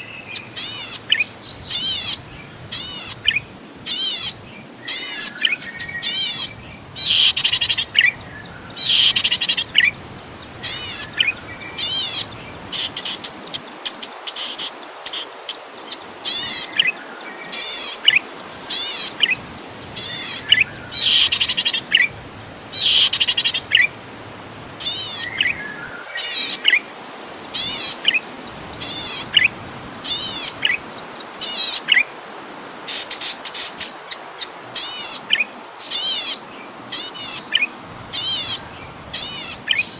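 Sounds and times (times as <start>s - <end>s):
bird singing sweeping notes: 0.0s - 23.9s, 24.8s - 32.0s.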